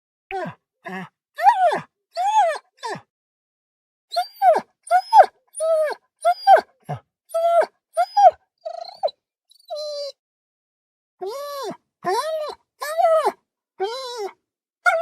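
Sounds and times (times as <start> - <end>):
dog whimpering and yelping: 1.4 - 2.9, 4.1 - 6.7, 7.3 - 10.2, 11.2 - 15.0.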